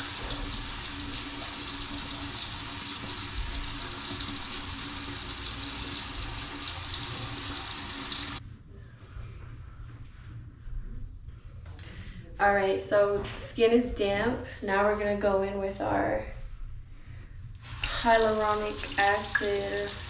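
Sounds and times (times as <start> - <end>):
person rinsing face: 0.0 - 8.4, 17.6 - 20.0
sink tap running: 0.0 - 8.4, 17.6 - 20.0.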